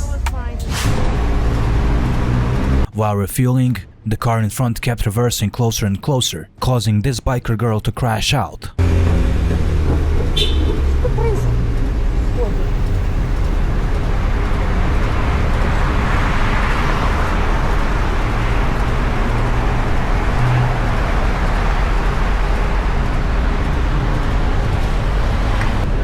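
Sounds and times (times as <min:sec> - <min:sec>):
low engine hum: 0:00.0 - 0:02.9, 0:08.8 - 0:26.0
traffic noise: 0:00.0 - 0:26.0.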